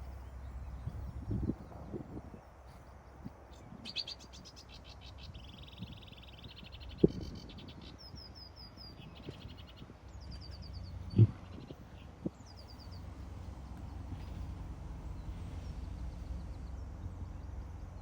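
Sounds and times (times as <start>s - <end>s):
distant motorway traffic rumble: 0.0s - 18.0s
songbirds singing trills: 0.0s - 18.0s
dull low thumps: 11.0s - 11.7s.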